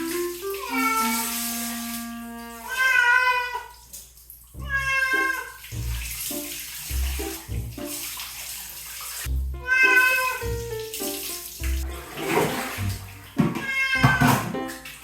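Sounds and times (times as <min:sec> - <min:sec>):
cat meowing: 0:00.6 - 0:01.2, 0:02.6 - 0:03.7, 0:04.6 - 0:05.6, 0:09.6 - 0:10.4, 0:13.6 - 0:14.2
background music with low beat: 0:04.6 - 0:05.0, 0:05.7 - 0:06.3, 0:06.9 - 0:08.0, 0:09.3 - 0:09.8, 0:10.4 - 0:14.6.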